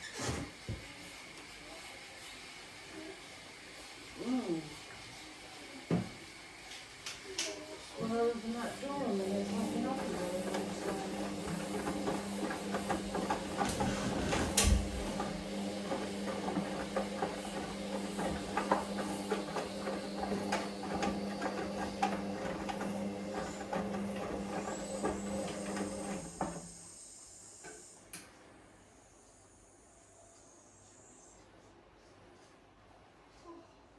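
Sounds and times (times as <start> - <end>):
washing machine motor hum: 7.7 - 27.5.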